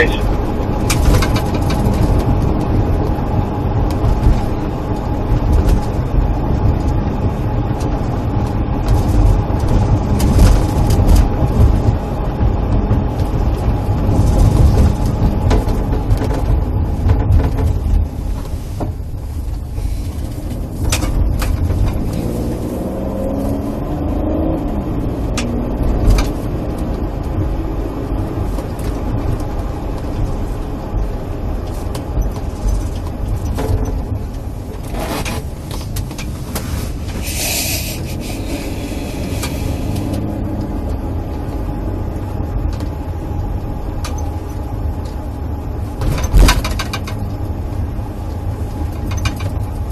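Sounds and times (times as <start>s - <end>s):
car engine hum and road rumble: 0.0s - 49.9s
brief hiss: 37.2s - 40.0s.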